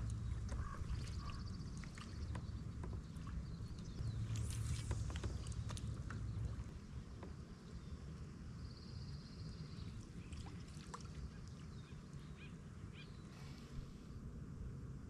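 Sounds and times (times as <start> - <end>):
faint bird chirps: 0.0 - 6.6
steady low rumble: 0.0 - 15.0.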